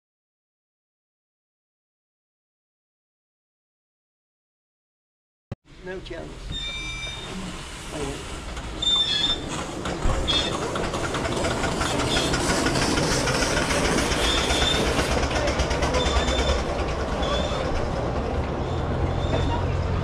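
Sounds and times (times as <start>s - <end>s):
wheels clattering on rails: 6.4s - 20.0s
wheels squealing: 6.4s - 20.0s.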